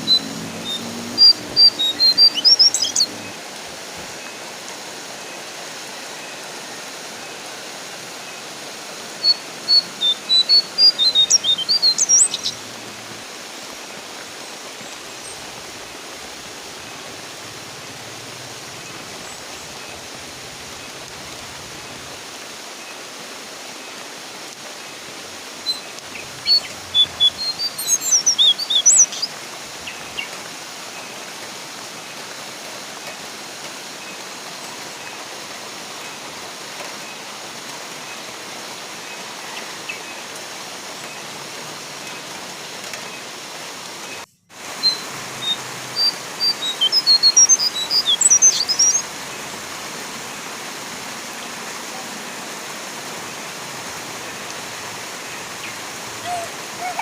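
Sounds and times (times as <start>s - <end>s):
bird chirping rapidly: 0.0s - 3.3s, 9.2s - 12.6s, 25.7s - 29.3s, 44.8s - 49.0s
rain hiss: 0.0s - 57.0s.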